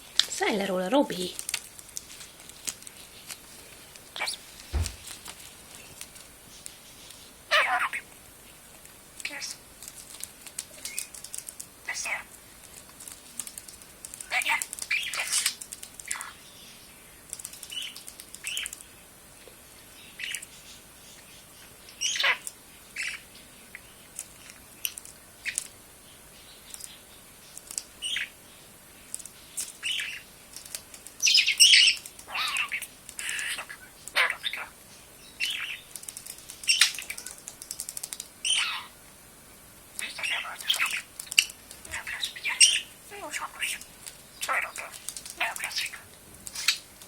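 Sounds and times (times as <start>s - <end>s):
budgerigar chirping and chattering: 7.5s - 8.1s, 11.9s - 12.3s, 14.3s - 16.4s, 17.7s - 18.8s, 21.9s - 22.4s, 23.0s - 23.3s, 29.8s - 30.3s, 31.2s - 34.8s, 35.4s - 35.9s, 36.7s - 37.1s, 38.4s - 39.0s, 40.0s - 46.9s.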